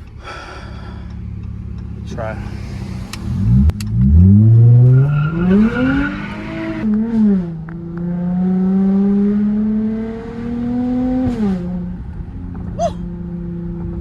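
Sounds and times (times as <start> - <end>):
car engine revving hard: 2.1 - 11.8.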